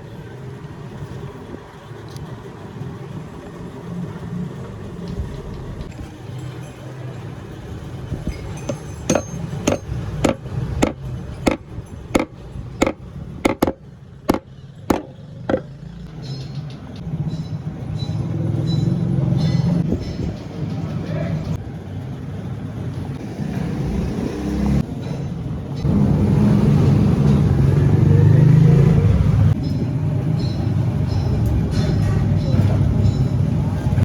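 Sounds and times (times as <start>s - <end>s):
hammer taps on metal: 8.7s - 11.6s, 12.2s - 15.7s.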